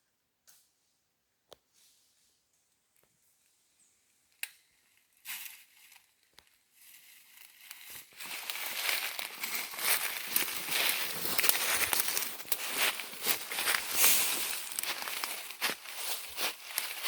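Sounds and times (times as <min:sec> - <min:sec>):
rustling through dry leaves: 0:05.2 - 0:17.0.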